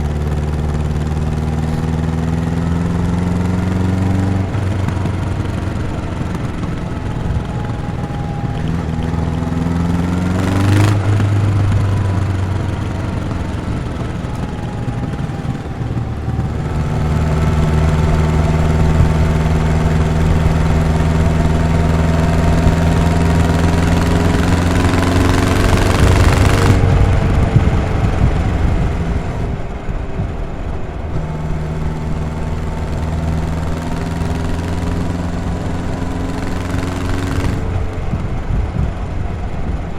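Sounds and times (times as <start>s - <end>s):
motorcycle engine running: 0.0s - 39.9s
rushing noise: 0.0s - 39.9s.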